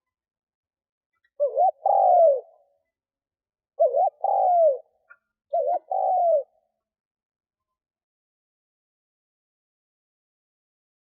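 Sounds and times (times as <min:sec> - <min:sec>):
dove cooing: 0:01.3 - 0:02.8, 0:03.8 - 0:06.7.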